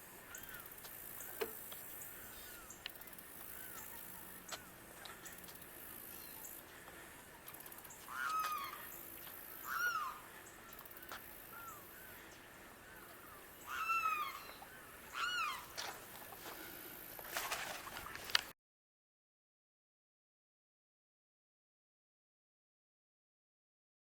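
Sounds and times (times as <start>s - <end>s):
faint short bird calls: 7.3s - 10.8s, 11.5s - 16.0s
limpkin wailing calls: 8.1s - 10.3s, 13.2s - 15.8s.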